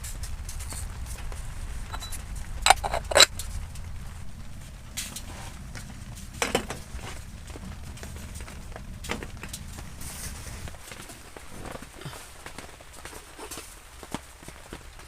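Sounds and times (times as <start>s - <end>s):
low steady background rumble: 0.0s - 15.0s
metallic clinks of cookware: 1.9s - 3.3s.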